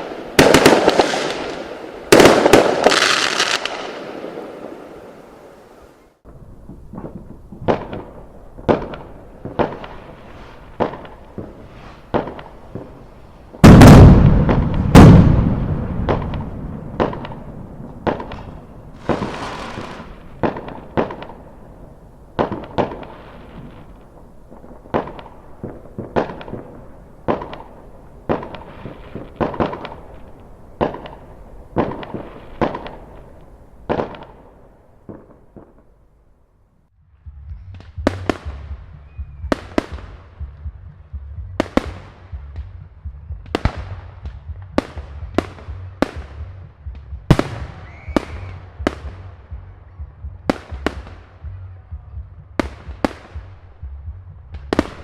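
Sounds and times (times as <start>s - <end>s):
fireworks bangs: 0.0s - 35.9s, 46.9s - 49.3s
hissing crackle of fireworks: 0.0s - 35.9s, 47.3s - 49.2s
loud fireworks booms: 0.0s - 35.9s, 43.4s - 49.6s.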